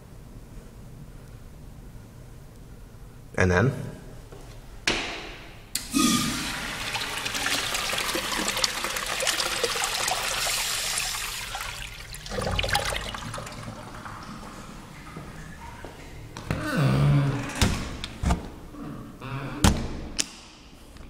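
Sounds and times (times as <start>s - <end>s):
flush valve click: 5.7s - 6.4s
toilet flushing water rush: 5.8s - 15.6s.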